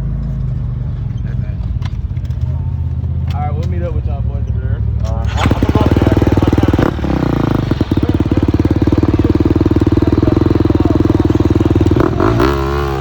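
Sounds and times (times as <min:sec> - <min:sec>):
dirt bike engine running: 0:04.8 - 0:13.0.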